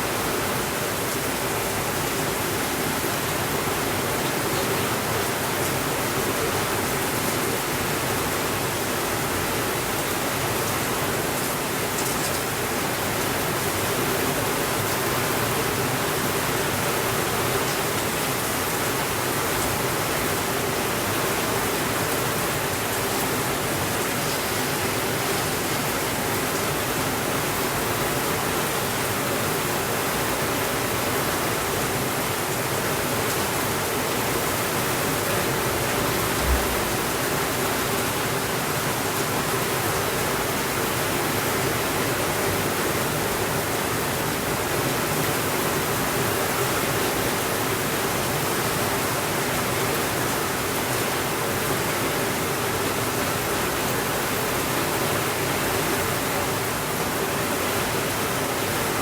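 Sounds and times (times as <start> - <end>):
steady rainfall: 0.0 - 59.0
soft low thump: 36.2 - 37.2.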